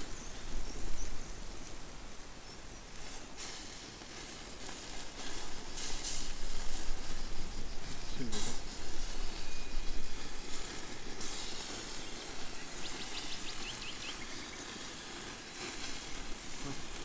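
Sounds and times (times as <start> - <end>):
wood fire hissing and crackling: 0.0 - 17.0.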